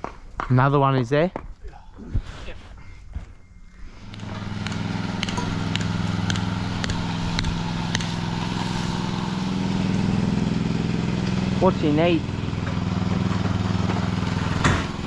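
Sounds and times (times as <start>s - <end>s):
engine running: 3.8s - 15.0s
sharp clicks: 4.1s - 8.2s.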